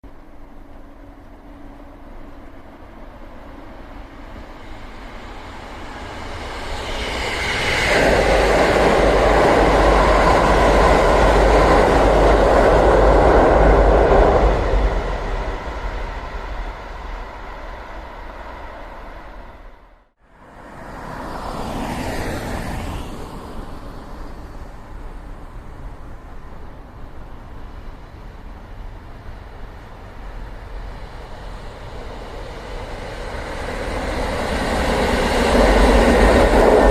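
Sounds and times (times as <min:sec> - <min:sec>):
train passing rumble: 0:00.0 - 0:36.9.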